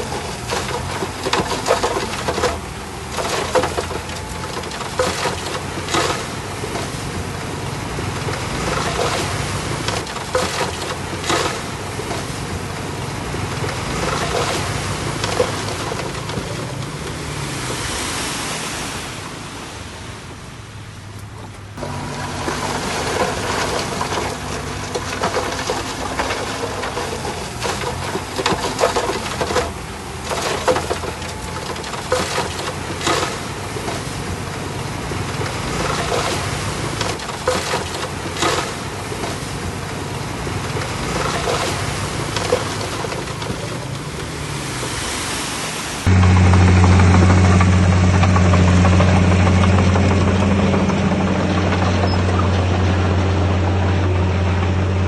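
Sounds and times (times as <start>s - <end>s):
clanks knocks and rattles: 0.0s - 7.0s, 8.2s - 12.4s, 13.5s - 17.2s, 21.3s - 34.3s, 35.3s - 39.6s, 40.6s - 44.3s, 46.1s - 55.0s
diesel engine of heavy machinery: 0.0s - 20.1s, 21.2s - 55.0s.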